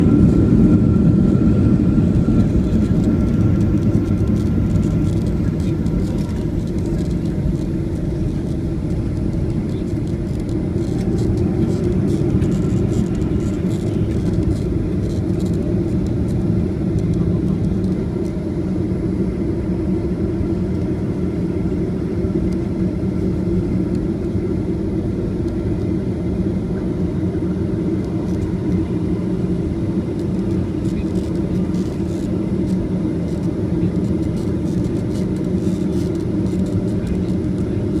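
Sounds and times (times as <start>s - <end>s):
aircraft engine rumble: 0.0s - 38.0s.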